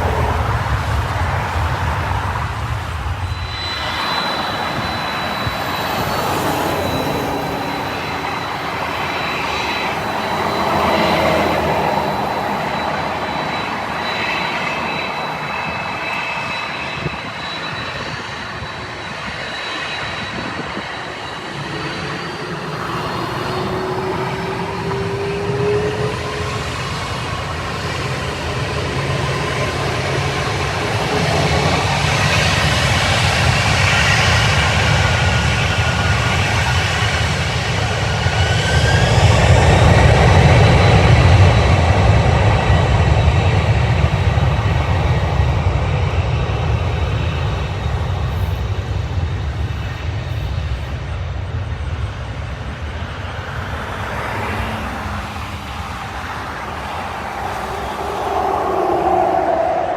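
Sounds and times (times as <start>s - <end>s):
faint whining tones: 0.0s - 39.1s, 54.5s - 59.9s
jet engines roaring: 0.0s - 59.9s.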